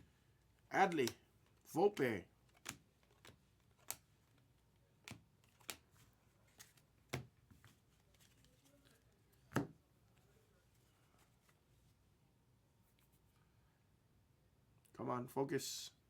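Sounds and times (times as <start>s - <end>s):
cards flicking and tapping: 0.8s - 8.6s, 9.4s - 9.8s.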